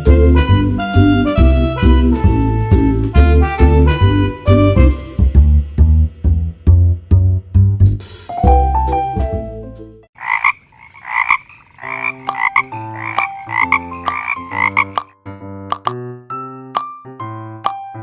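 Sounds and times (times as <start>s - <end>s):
background music with plucked bass: 0.0s - 10.0s
frog croaking: 10.2s - 15.1s.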